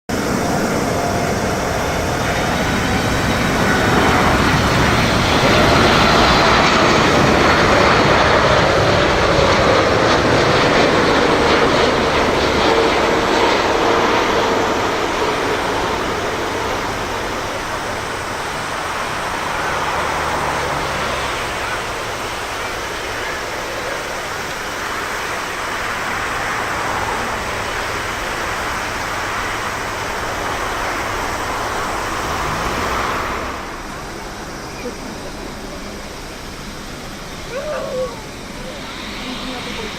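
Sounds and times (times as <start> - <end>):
jet engines passing by: 0.1 - 39.9.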